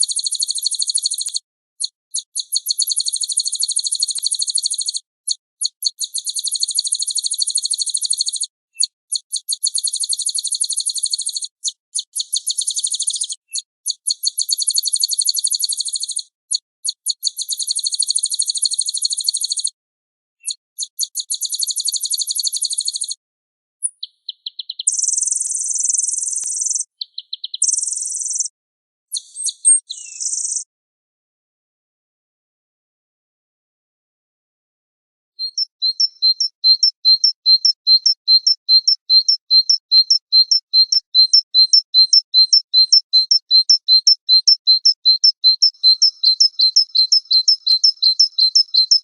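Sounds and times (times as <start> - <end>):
small songbirds trilling: 0.0 - 5.0, 24.0 - 28.5, 35.4 - 49.0.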